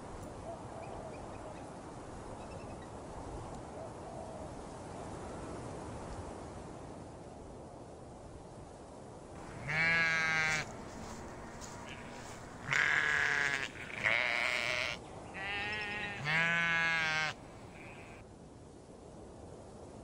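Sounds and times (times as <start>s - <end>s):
sheep bleating: 9.4s - 18.2s.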